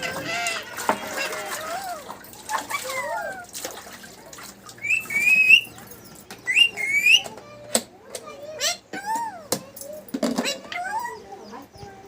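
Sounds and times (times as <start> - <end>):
parrot whistled calls: 4.8 - 5.8, 6.4 - 7.3.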